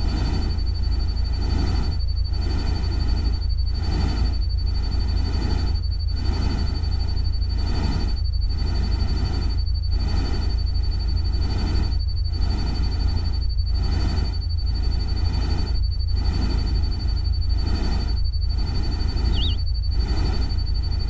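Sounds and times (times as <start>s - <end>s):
deep constant rumble: 18.4s - 19.8s
thin steady high tone: 18.5s - 19.6s.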